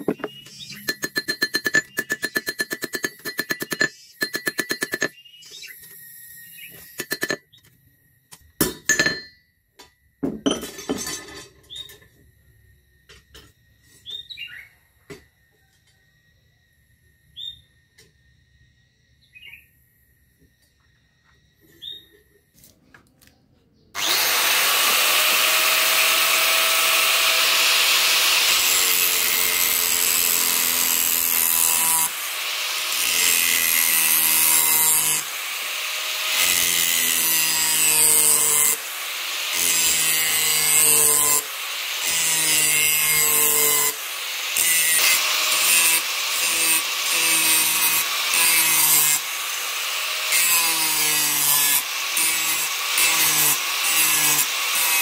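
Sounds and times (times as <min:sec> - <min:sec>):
electric grinder on steel: 0:00.0 - 0:07.4, 0:24.0 - 0:55.0.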